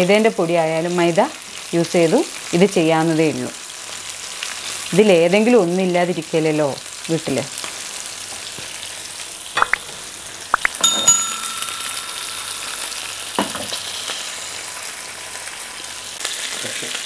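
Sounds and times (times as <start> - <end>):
fish sizzling in a pan: 0.0 - 10.7, 11.6 - 17.0
bell ding: 10.6 - 13.8.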